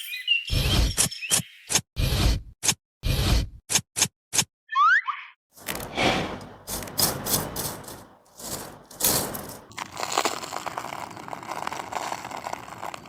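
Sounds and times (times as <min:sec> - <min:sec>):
rough scraping and rustling: 0:05.6 - 0:13.0
steady crackling: 0:05.6 - 0:13.0.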